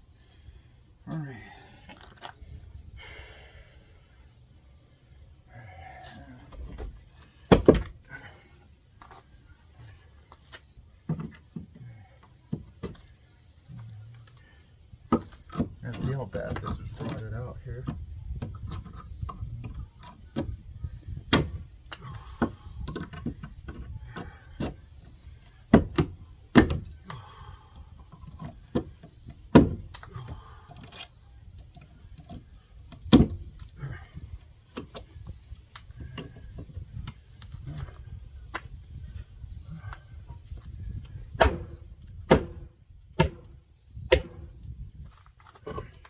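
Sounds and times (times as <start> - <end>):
wood framing knocking and cracking: 7.5 - 7.9, 25.7 - 26.9, 28.7 - 30.0, 41.3 - 44.6.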